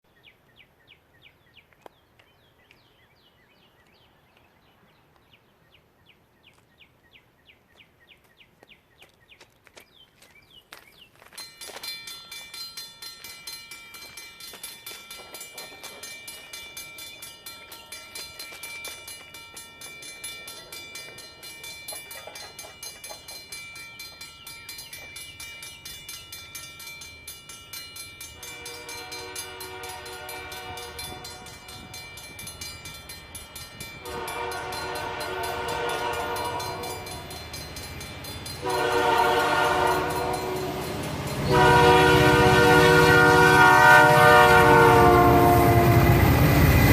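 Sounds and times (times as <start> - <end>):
crossing warning bell ringing: 11.3 - 46.9
locomotive horn blasts: 28.4 - 31.9, 34.0 - 37.3, 38.6 - 46.3.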